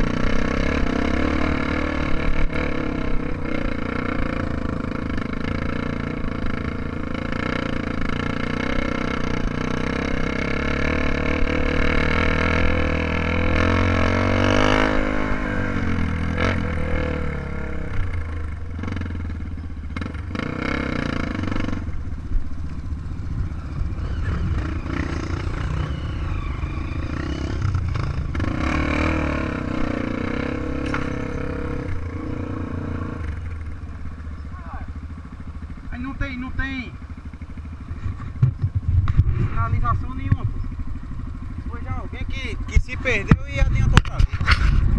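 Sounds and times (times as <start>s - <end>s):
motorcycle engine revving: 0.0s - 44.9s
sharp clattering knocks: 38.0s - 39.4s.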